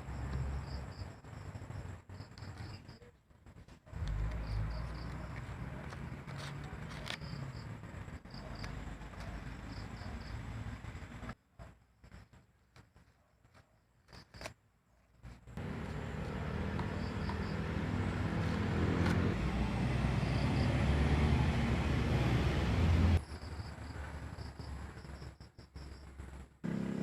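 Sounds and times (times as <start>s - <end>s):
vehicle engine running: 3.9s - 11.4s, 15.6s - 23.2s, 26.6s - 27.0s.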